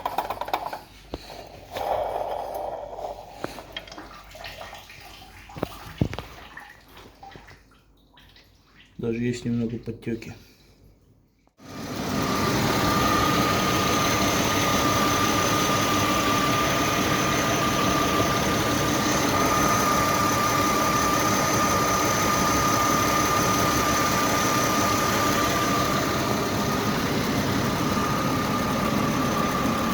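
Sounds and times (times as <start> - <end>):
thin high whine: 11.8 - 29.9.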